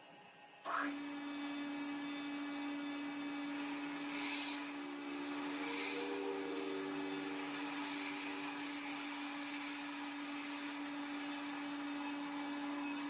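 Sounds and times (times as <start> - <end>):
electric motor running: 0.7 - 13.0
high hiss: 5.1 - 11.6.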